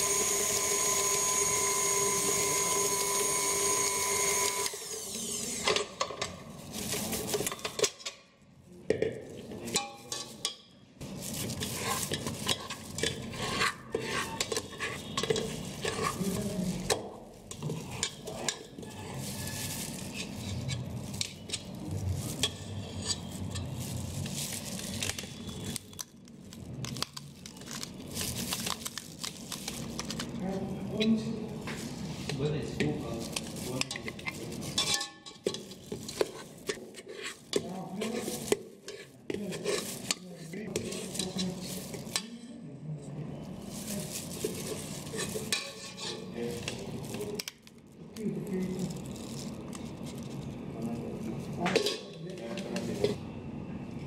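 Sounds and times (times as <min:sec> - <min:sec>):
stand mixer motor: 0:00.0 - 0:05.2
metal scoop scraping steel bowl: 0:11.4 - 0:26.0, 0:32.2 - 0:42.5, 0:43.6 - 0:47.5.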